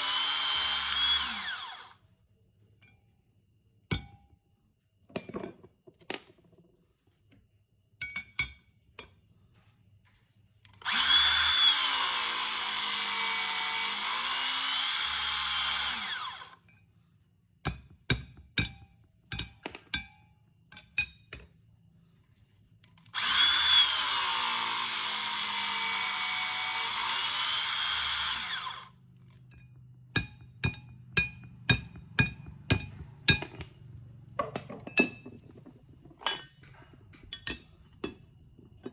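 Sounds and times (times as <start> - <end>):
hydraulic metal cutter motor: 0.0 - 2.0, 10.8 - 16.6, 23.1 - 28.9.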